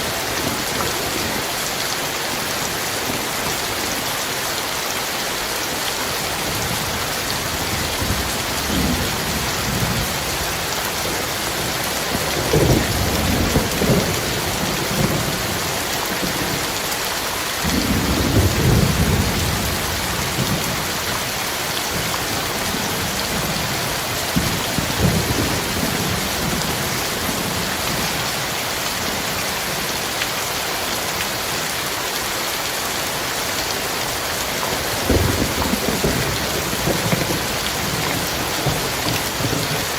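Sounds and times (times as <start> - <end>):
heavy rain pouring: 0.0 - 39.9
thunder rumbling: 6.4 - 16.7, 17.6 - 28.2, 34.7 - 39.9.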